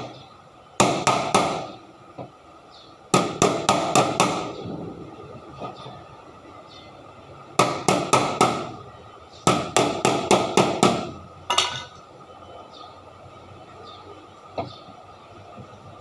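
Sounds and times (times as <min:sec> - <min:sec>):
hammer blows on vehicle: 0:00.8 - 0:01.8, 0:03.1 - 0:04.6, 0:07.6 - 0:08.8, 0:09.4 - 0:11.9.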